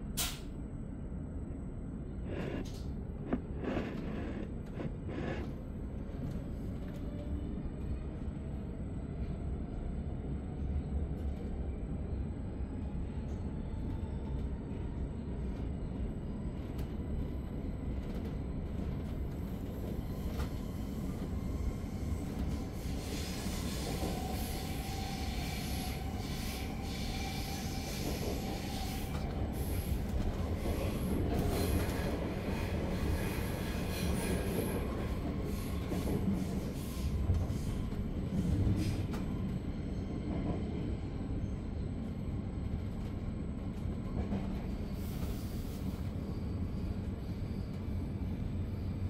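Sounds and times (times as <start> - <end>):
train wheels rumbling on track: 15.4 - 41.0, 41.9 - 49.0.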